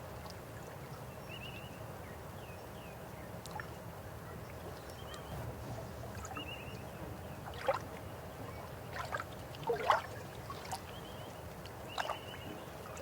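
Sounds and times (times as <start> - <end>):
water gurgles and plops: 8.9 - 11.0.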